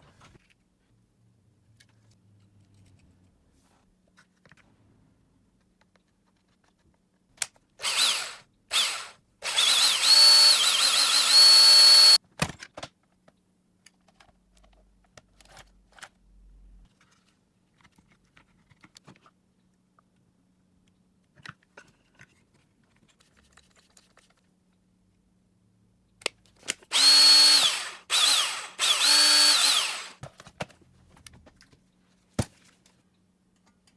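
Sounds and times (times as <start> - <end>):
power drill motor whining: 7.8 - 12.2, 26.9 - 30.2.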